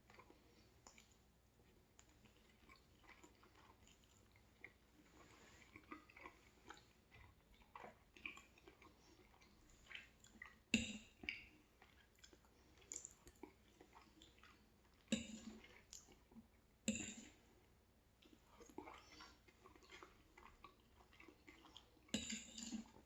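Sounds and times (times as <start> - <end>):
person chewing food: 0.0 - 23.0
wet mouth clicks: 5.8 - 16.2.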